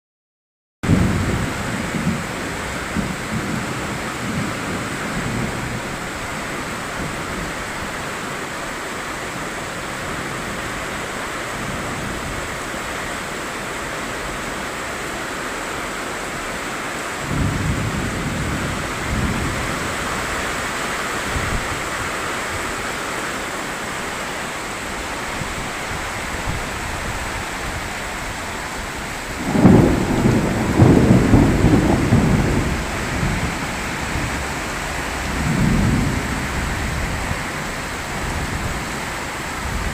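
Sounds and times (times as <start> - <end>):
heavy rain pouring: 0.8 - 39.9
low rumbles: 25.0 - 39.9.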